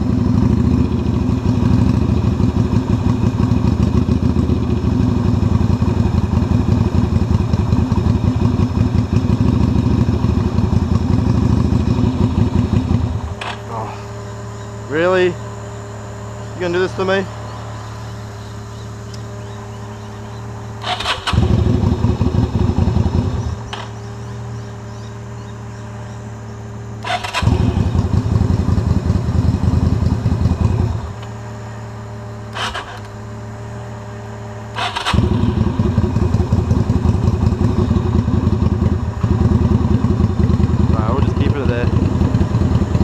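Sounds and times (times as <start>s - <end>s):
car engine idling: 0.0s - 43.0s
motorcycle electric starter cranking: 13.3s - 13.9s, 20.8s - 21.9s, 23.6s - 24.1s, 27.0s - 27.8s, 32.5s - 33.2s, 34.7s - 35.6s.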